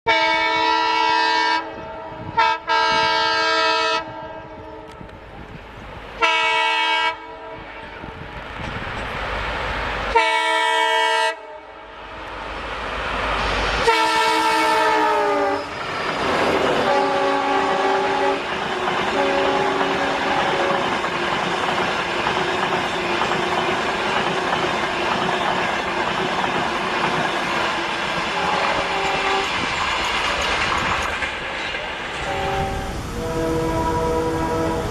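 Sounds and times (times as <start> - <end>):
train horn blasts: 0.1 - 5.1, 6.2 - 8.2, 10.1 - 11.9, 13.8 - 15.7, 16.4 - 18.5, 19.1 - 21.0, 28.3 - 29.6, 32.2 - 34.9
train cars rumbling and clattering: 7.5 - 10.6, 12.1 - 34.9.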